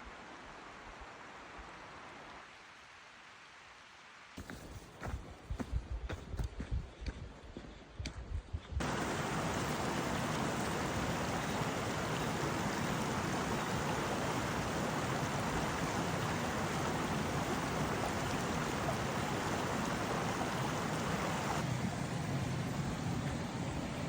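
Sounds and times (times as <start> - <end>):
river water rushing: 8.8 - 24.0.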